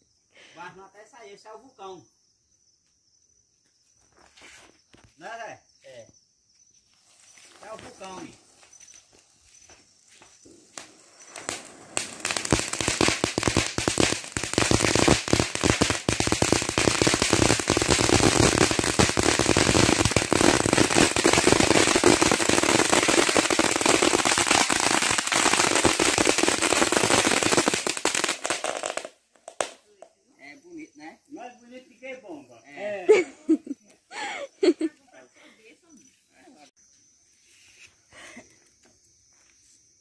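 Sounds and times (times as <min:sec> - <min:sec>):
firework crackling hiss: 0:06.7 - 0:30.1.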